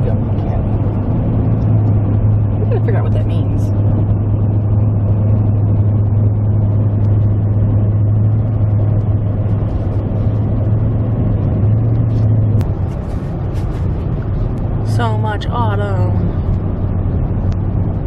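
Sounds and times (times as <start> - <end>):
vehicle engine and road drone: 0.0 - 18.0.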